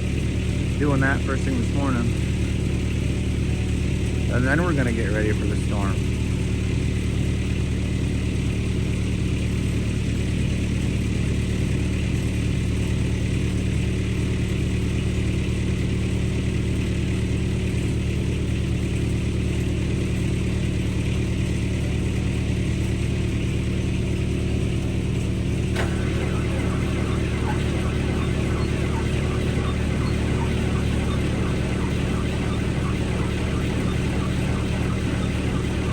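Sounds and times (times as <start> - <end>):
vehicle engine idling: 24.8 - 35.9.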